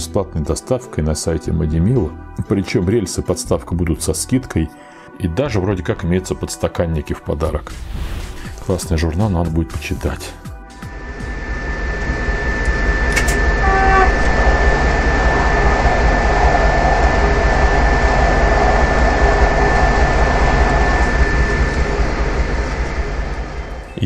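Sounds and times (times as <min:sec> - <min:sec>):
train running rumble: 0:10.7 - 0:24.0
passing train rush: 0:10.8 - 0:24.0
train horn blast: 0:13.2 - 0:14.8.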